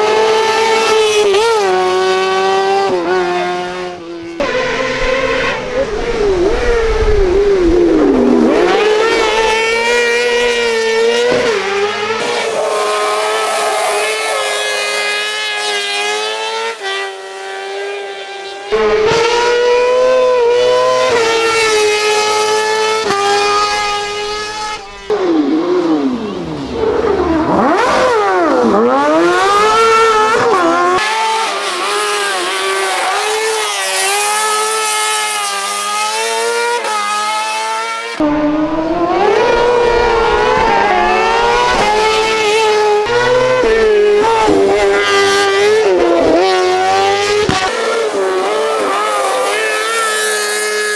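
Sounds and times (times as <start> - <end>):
engines revving at high rpm: 0.0 - 50.9.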